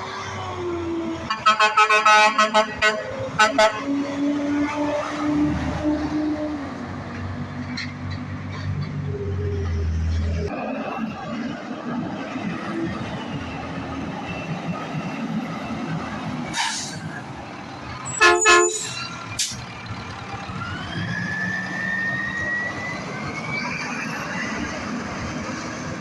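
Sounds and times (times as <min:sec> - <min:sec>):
road traffic: 0:00.0 - 0:26.0
truck horn blast: 0:01.3 - 0:06.5, 0:18.1 - 0:19.6
vehicle accelerating whine: 0:03.2 - 0:18.2, 0:19.0 - 0:26.0.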